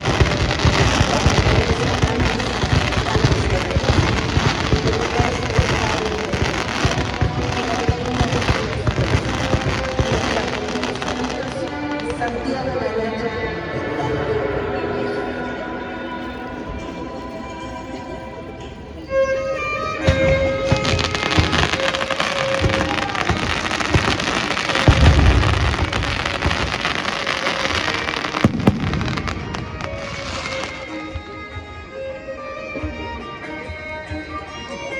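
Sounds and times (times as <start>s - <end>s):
fireworks bangs and crackles: 0.0s - 14.6s, 18.6s - 31.6s.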